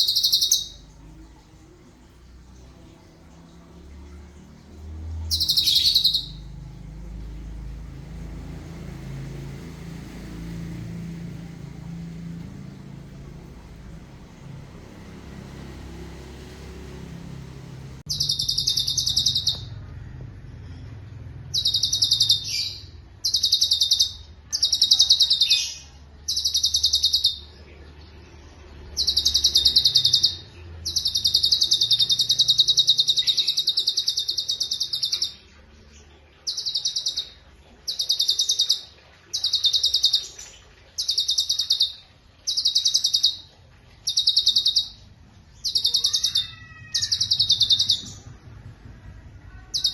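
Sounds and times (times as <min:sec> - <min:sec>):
bird singing rolling trills: 0:00.0 - 0:19.9, 0:20.5 - 0:48.6, 0:49.5 - 0:49.9
low rumble: 0:00.0 - 0:23.5, 0:47.1 - 0:49.9.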